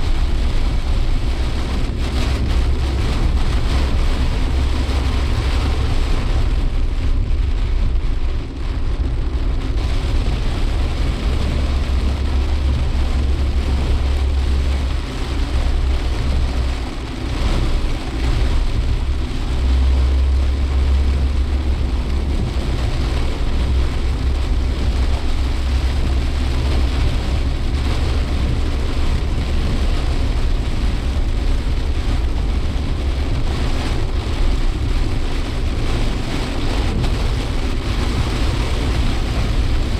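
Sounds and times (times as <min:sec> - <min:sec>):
car engine and road noise: 0:00.0 - 0:39.9
rain on a car: 0:00.0 - 0:39.9.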